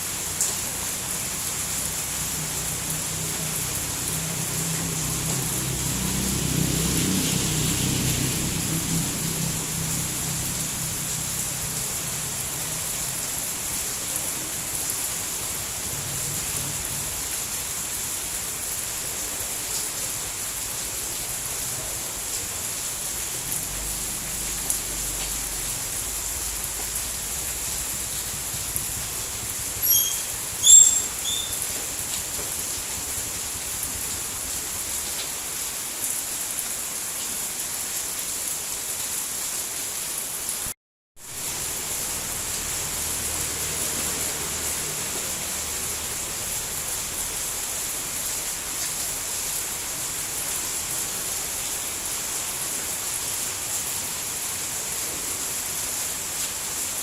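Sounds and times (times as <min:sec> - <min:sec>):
steady rain falling: 0:00.0 - 0:57.0
high chirps: 0:29.8 - 0:31.7.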